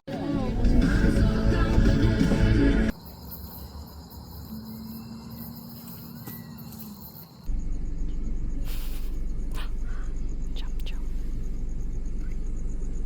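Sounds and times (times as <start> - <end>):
music: 0.1 - 2.9
insects trilling: 2.9 - 13.0.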